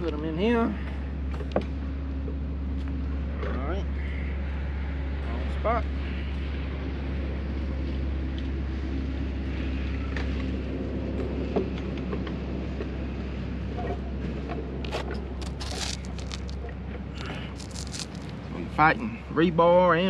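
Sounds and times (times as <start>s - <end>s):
steady low rumble: 0.7s - 20.0s
scraping and rustling: 14.9s - 16.6s, 17.2s - 18.4s.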